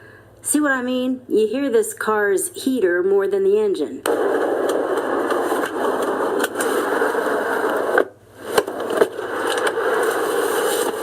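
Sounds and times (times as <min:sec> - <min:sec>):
heater blower fan: 0:04.0 - 0:11.0.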